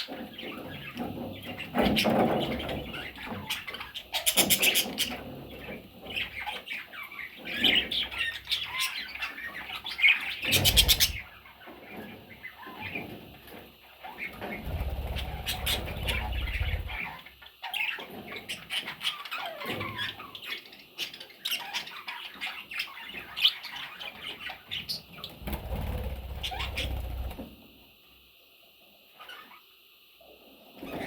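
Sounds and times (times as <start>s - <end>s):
budgerigars chirping and squawking: 0.0s - 27.4s, 29.2s - 29.6s
wings flapping: 10.4s - 11.3s, 14.4s - 17.2s, 25.3s - 27.5s.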